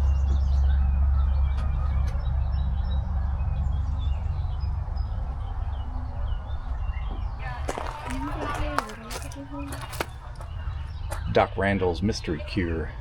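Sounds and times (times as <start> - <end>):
songbirds chirping: 0.0 - 13.0
steady low rumble: 0.0 - 13.0.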